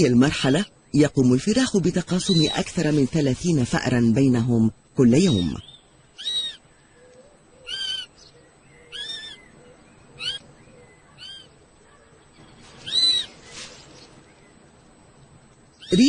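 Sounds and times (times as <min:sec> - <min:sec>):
kestrel chicks calling: 0:02.1 - 0:02.8, 0:05.6 - 0:14.8, 0:15.7 - 0:16.0.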